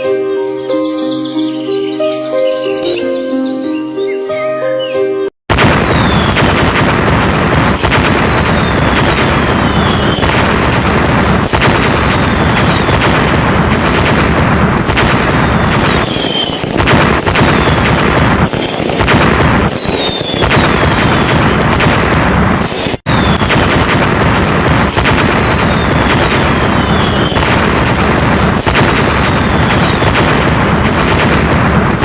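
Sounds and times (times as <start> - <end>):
high falling whistles: 5.9 - 6.4, 7.9 - 10.4, 11.5 - 13.1, 15.5 - 16.8, 17.4 - 21.5, 23.1 - 23.5, 25.2 - 27.5, 28.1 - 30.2.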